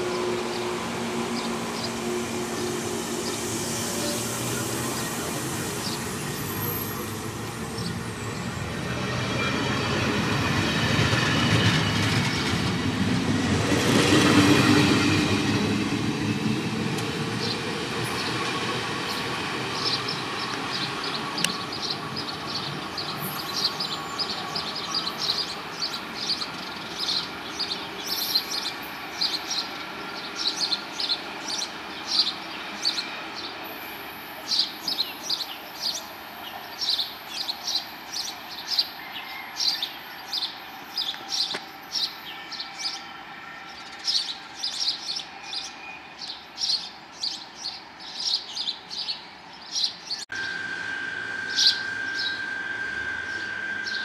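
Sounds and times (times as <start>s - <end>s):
train rumble: 0.0s - 39.1s, 50.3s - 54.0s
steady high tone: 50.3s - 54.0s.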